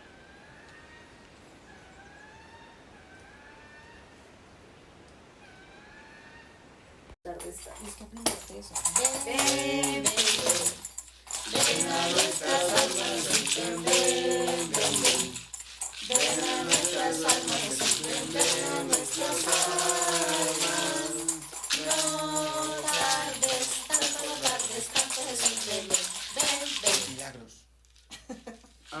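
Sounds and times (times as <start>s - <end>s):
maracas and tambourine shaking: 7.2s - 29.0s
voices singing together: 8.7s - 27.3s.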